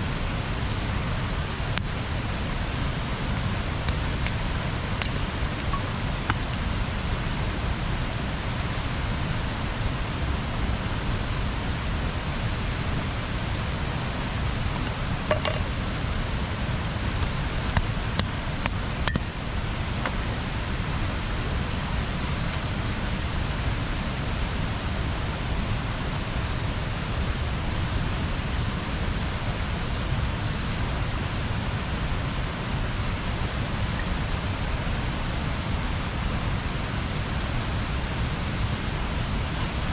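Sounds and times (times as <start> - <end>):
fire crackles and pops: 3.6 - 6.7.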